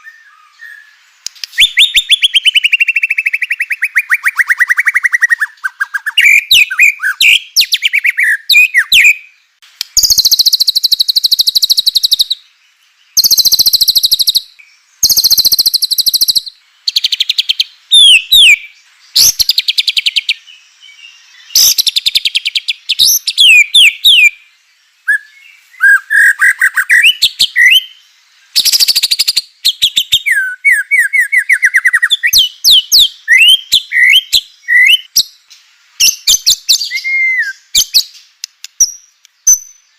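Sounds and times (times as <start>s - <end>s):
bird whistled phrases: 0.0s - 9.2s, 13.2s - 20.3s, 21.5s - 24.4s, 25.1s - 27.9s, 28.6s - 35.2s, 36.0s - 38.2s
bird rattling song: 9.8s - 12.3s, 13.2s - 18.6s.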